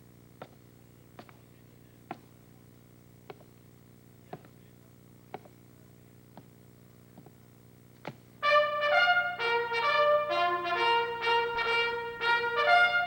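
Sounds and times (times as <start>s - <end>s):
faint steady hum: 0.0s - 13.0s
slow hard footsteps: 0.3s - 0.6s, 3.2s - 3.6s, 5.3s - 5.6s, 6.3s - 8.3s.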